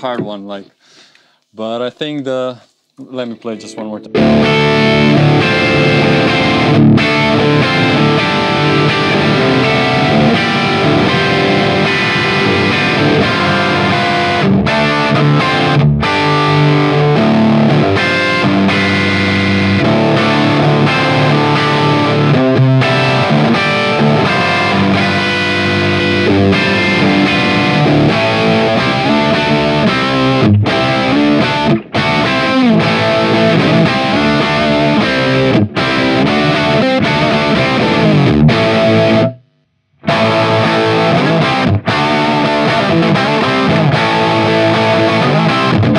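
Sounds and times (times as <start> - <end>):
distorted electric guitar: 0.0 - 0.6, 3.0 - 45.9.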